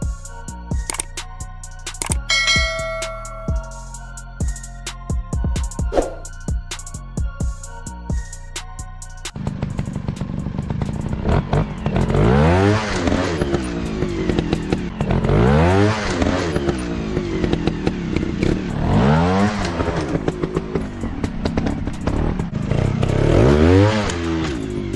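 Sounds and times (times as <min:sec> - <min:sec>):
clattering clicks: 0:02.0 - 0:02.3
dirt bike engine revving: 0:09.4 - 0:24.8.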